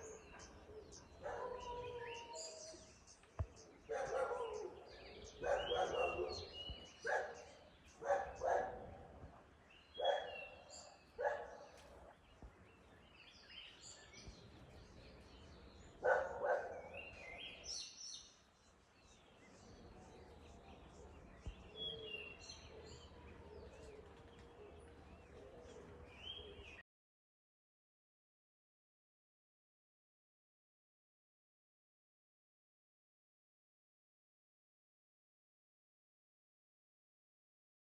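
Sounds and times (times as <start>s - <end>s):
birds chirping: 0.0s - 26.8s
dog barking: 0.3s - 2.3s, 3.9s - 9.2s, 10.0s - 12.1s, 16.0s - 17.4s.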